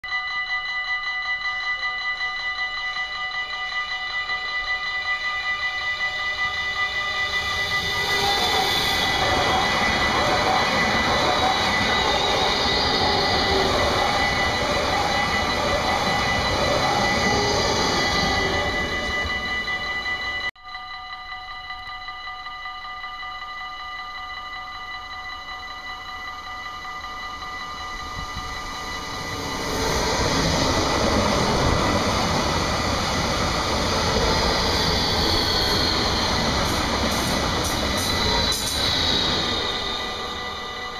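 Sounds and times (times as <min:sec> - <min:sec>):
thin high whine: 0:00.1 - 0:40.9
high electric whine: 0:06.0 - 0:20.5
train wheels rushing on rail: 0:06.5 - 0:20.5, 0:28.0 - 0:40.9.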